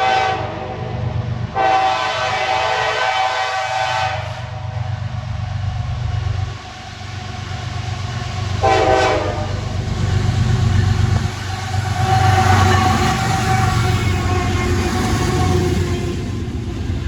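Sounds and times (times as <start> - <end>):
train horn blast: 0.0 - 0.9, 1.5 - 4.6, 8.6 - 9.7, 11.8 - 16.3
diesel locomotive rumbling: 0.0 - 17.0.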